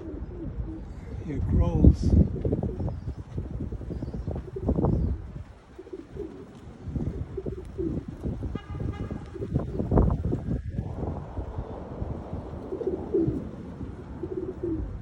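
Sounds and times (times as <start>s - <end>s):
pigeons cooing: 0.0s - 15.0s
wind buffeting microphone: 0.0s - 15.0s
car horn: 8.5s - 9.4s.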